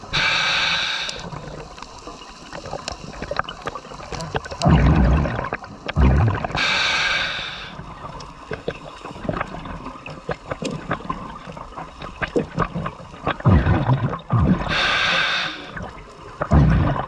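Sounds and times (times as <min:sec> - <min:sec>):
hissing inhale through regulator: 0:00.0 - 0:01.9, 0:06.5 - 0:08.0, 0:14.4 - 0:17.0
faint clicks and crackles: 0:00.0 - 0:17.0
exhaled bubbles rumbling: 0:02.6 - 0:17.0.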